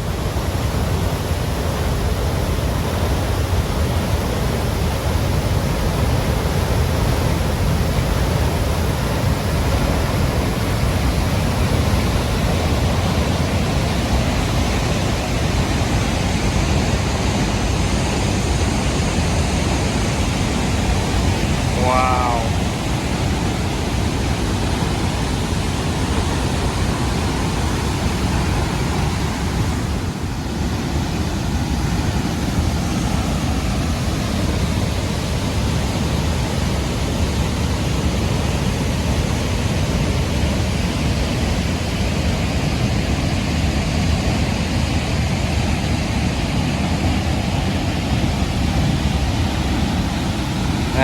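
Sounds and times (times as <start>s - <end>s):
waterfall roaring: 0.0s - 51.0s.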